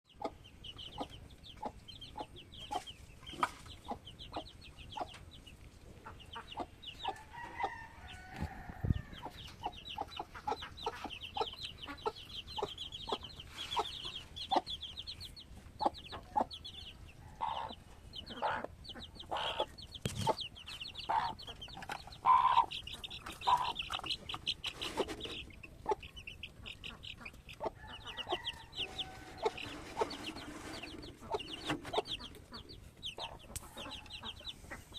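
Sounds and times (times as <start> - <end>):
chicks peeping: 0.1 - 34.9
lower clucking calls: 17.4 - 34.9.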